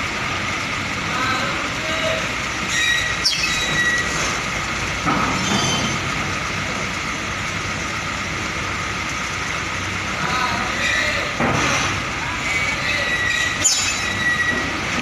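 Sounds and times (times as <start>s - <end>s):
heavy truck engine running: 0.0s - 15.0s
high squeals: 2.7s - 4.2s, 12.9s - 14.7s.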